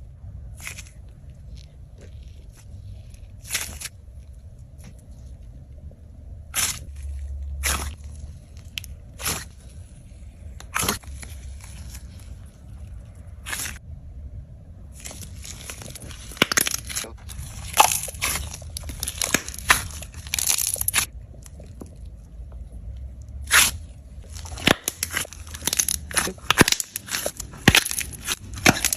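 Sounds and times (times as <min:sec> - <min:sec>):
slime clicking and popping: 0:15.7 - 0:21.8, 0:23.5 - 0:28.9.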